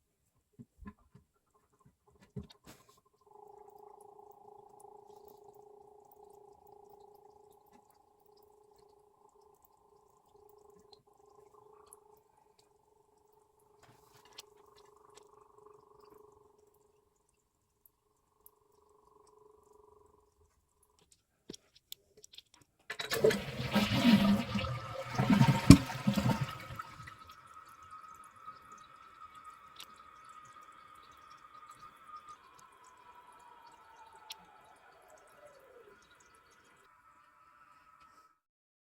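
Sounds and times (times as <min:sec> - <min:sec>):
faint steady hum: 0:00.0 - 0:22.0, 0:22.9 - 0:38.4
toilet flushing: 0:22.9 - 0:38.1.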